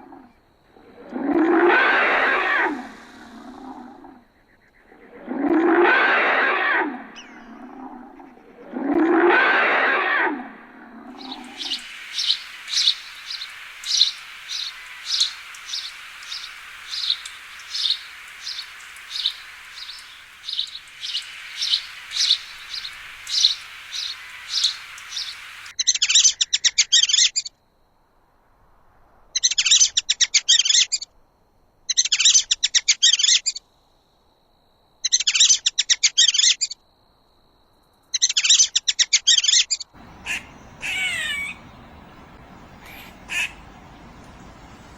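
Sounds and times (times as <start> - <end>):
bird high trills: 11.2 - 25.7, 40.0 - 44.9.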